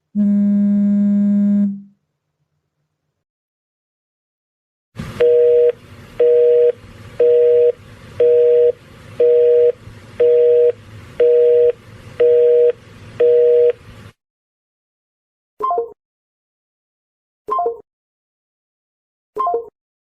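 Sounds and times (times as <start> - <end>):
telephone busy signal beeps: 5.2 - 13.8.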